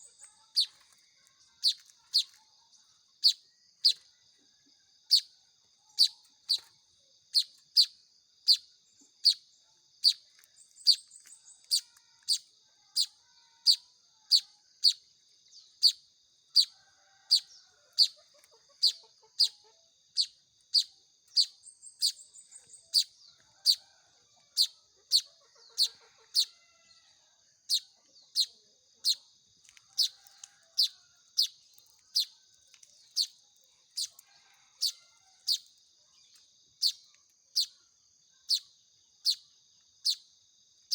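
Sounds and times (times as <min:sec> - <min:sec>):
chicks begging chirps: 0:00.0 - 0:02.5, 0:15.8 - 0:23.9, 0:24.5 - 0:26.9, 0:29.8 - 0:32.4, 0:34.0 - 0:35.7.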